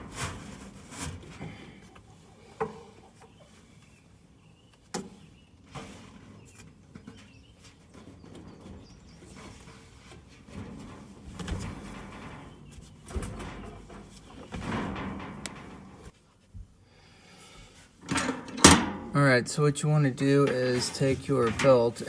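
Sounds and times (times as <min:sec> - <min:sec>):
faint rubbing and rustling: 0:00.0 - 0:16.8, 0:19.2 - 0:22.0
sharp knocks and clicks: 0:11.4 - 0:16.1.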